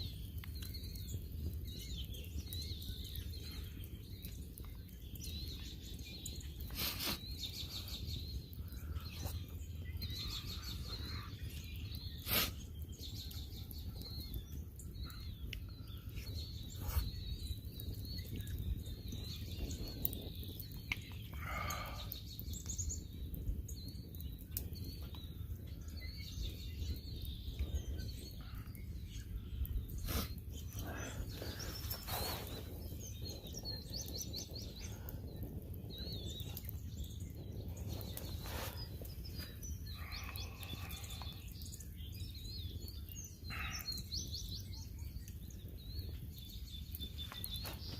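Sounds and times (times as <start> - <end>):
songbirds chirping and trilling: 0.0 - 47.9
low outdoor rumble: 15.1 - 47.1.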